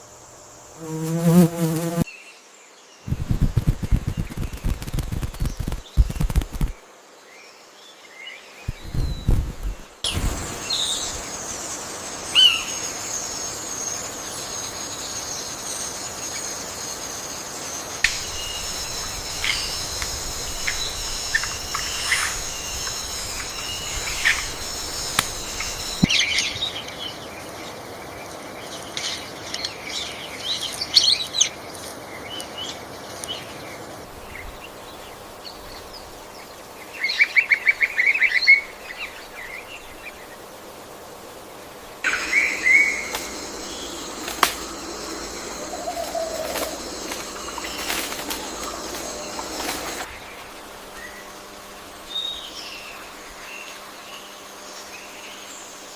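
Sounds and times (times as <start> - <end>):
high ringing drone: 10.4 - 26.1, 42.0 - 50.1
birds calling and chirping: 18.0 - 27.2, 42.0 - 50.4
bird fast trill: 42.1 - 50.1.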